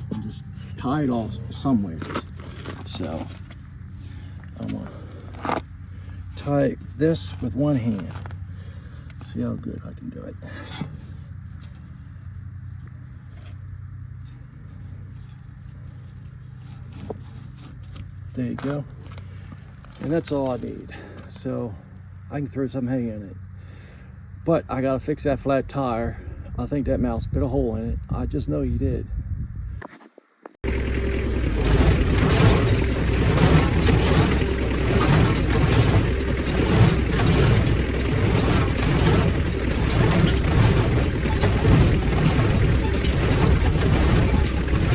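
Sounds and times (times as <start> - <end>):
faint rustles and clicks: 0.0 - 9.4, 10.6 - 21.4, 31.2 - 44.9
low engine hum: 0.0 - 27.0, 30.6 - 44.9.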